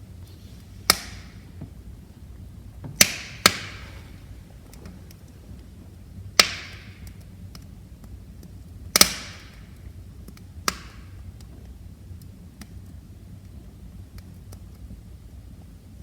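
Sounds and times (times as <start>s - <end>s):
low rumble of flames: 0.0s - 16.0s
wood fire crackling: 0.0s - 16.0s
loud sharp pops of fire: 0.2s - 1.8s, 2.9s - 12.9s.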